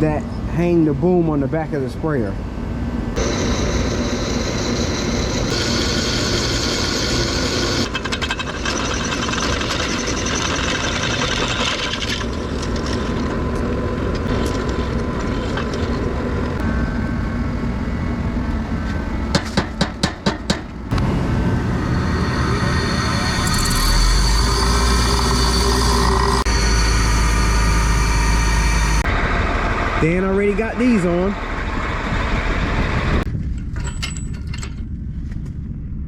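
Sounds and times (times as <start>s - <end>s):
power drill boring through steel: 3.2s - 13.1s, 21.7s - 29.1s.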